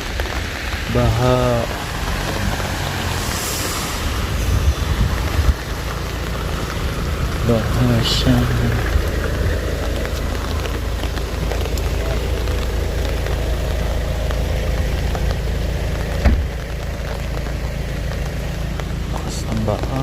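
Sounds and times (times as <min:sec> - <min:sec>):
low rumble: 0:00.0 - 0:20.0
rain and hail pattering: 0:00.0 - 0:20.0.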